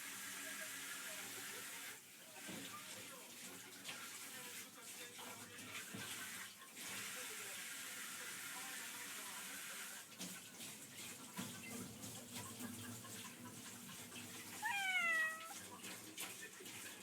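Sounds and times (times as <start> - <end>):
cat meowing: 14.6 - 15.6.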